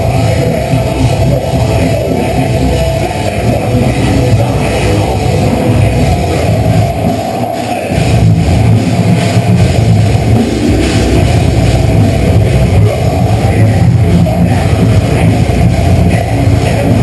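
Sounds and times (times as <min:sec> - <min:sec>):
bass guitar: 0:00.0 - 0:17.0
distorted guitars: 0:00.0 - 0:17.0
heavy drums: 0:00.0 - 0:17.0.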